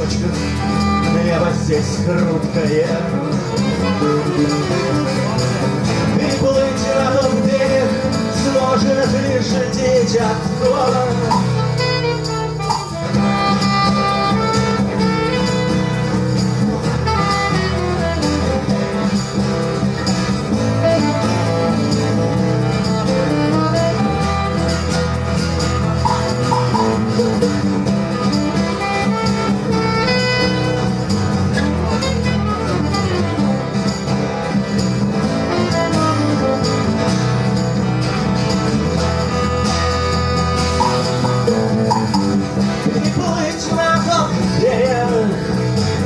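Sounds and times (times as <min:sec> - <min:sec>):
bass: 0:00.0 - 0:46.0
guitar: 0:00.0 - 0:46.0
fiddle: 0:11.4 - 0:42.4.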